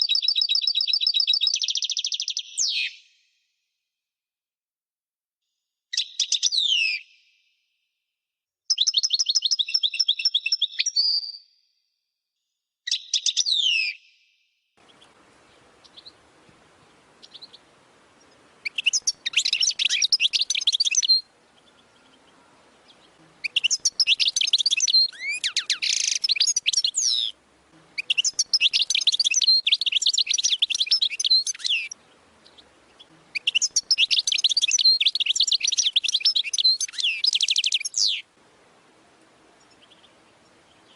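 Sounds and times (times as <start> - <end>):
bird twittering song: 0.0 - 3.2, 14.8 - 38.3, 39.6 - 40.9
faint hiss: 14.8 - 40.9.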